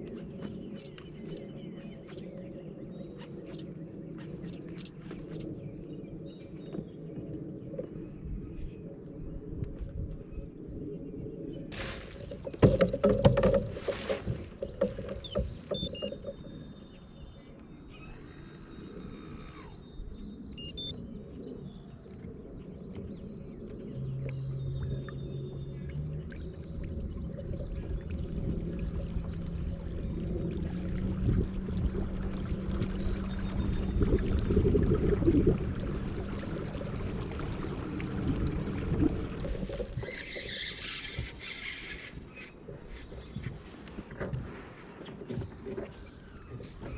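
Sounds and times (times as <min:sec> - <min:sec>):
water and open-air noise: 0:00.0 - 0:46.9
knocks and clunks on kayak: 0:11.7 - 0:16.8, 0:42.7 - 0:46.9.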